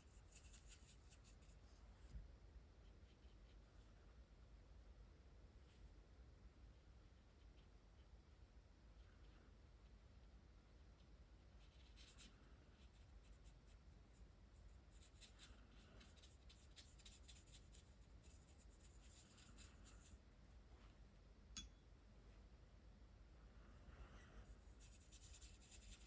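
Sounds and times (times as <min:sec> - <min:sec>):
marker scratching on paper: 0:14.9 - 0:20.2, 0:24.7 - 0:26.0.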